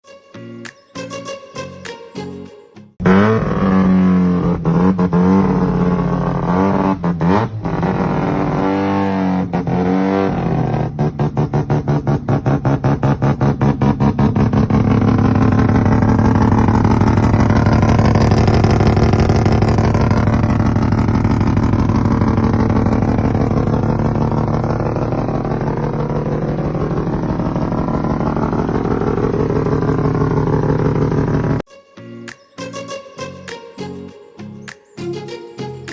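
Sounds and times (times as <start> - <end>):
rotary engine running: 12.8 - 31.6.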